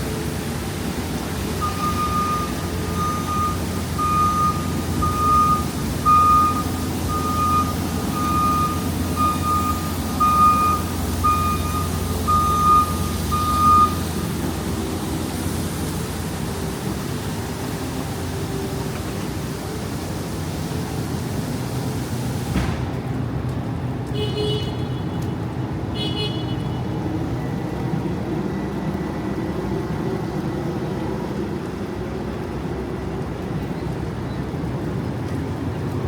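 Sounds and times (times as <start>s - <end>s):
street traffic rumble: 0.0s - 36.0s
wind: 0.0s - 36.0s
truck reversing alarm beeps: 1.6s - 14.8s.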